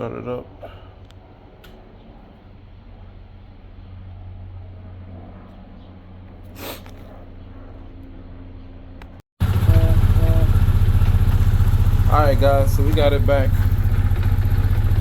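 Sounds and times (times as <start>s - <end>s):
motorcycle engine idling: 9.4s - 15.0s.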